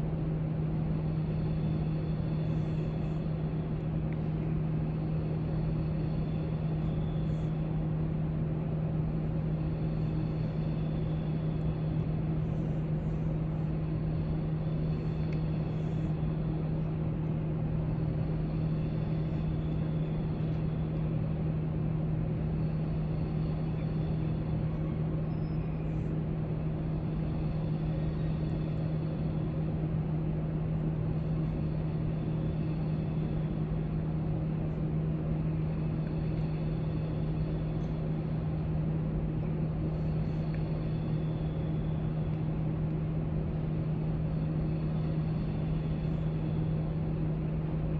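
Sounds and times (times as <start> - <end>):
low room hum: 0.0 - 47.9.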